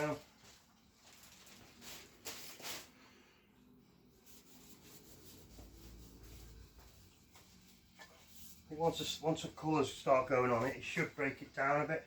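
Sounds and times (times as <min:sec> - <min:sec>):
cloth rubbing on mudguard: 0:04.1 - 0:09.2.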